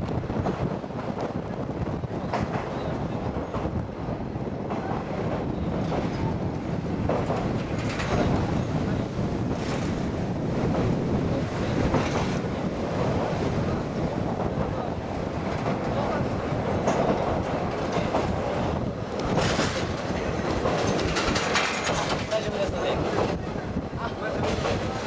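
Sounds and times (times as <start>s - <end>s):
railcar rumble: 0.0s - 25.0s
wheels clacking over rail joints: 4.6s - 23.4s.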